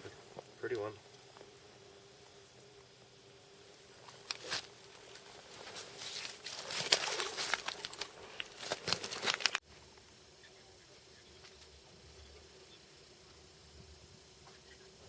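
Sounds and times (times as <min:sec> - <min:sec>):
rustling crackling and slapping: 0:04.0 - 0:09.6.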